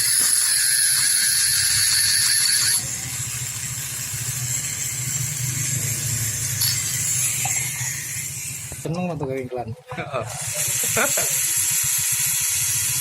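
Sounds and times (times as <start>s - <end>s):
scooter engine running: 0.0s - 8.9s.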